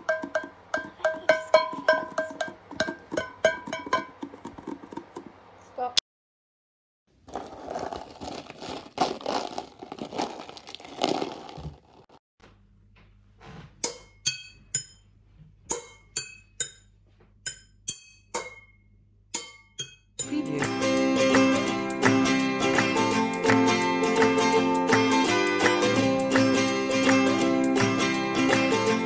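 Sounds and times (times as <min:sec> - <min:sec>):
saucepans struck as drums: 0:00.0 - 0:04.4.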